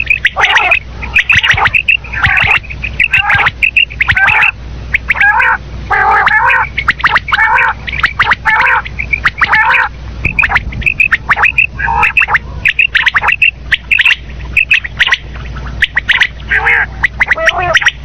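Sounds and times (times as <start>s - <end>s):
quail calling: 0.0s - 18.0s.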